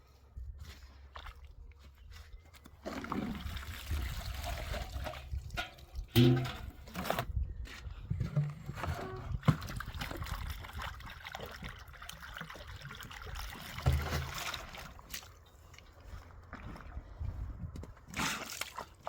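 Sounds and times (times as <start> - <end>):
water trickling and sloshing: 0.1 - 7.3, 8.3 - 19.0.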